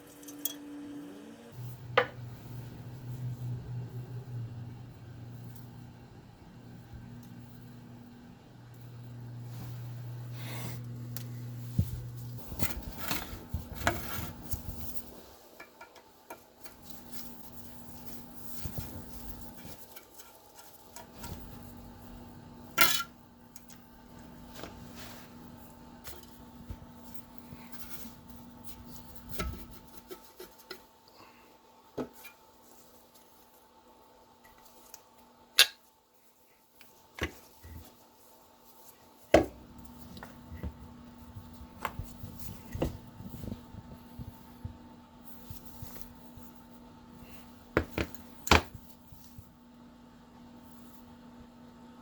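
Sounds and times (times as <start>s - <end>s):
metal parts clinking: 0.0s - 0.6s
low hum: 0.0s - 13.9s.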